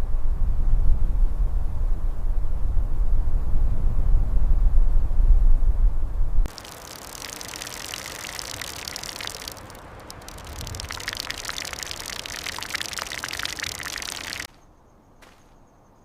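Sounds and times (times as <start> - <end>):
patter of falling rain: 6.5 - 14.6.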